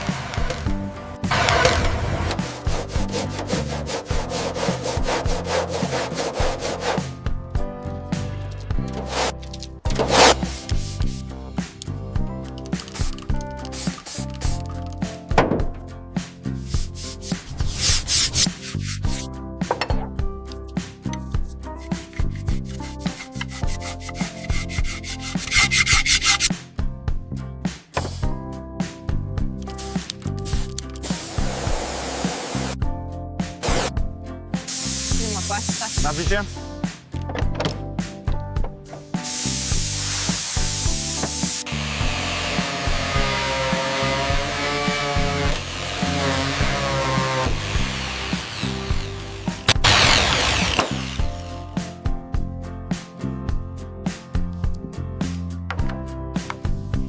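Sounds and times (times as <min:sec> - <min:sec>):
background music: 0:00.0 - 0:57.0
abrasive strokes on a surface: 0:01.3 - 0:07.2, 0:41.3 - 0:51.2.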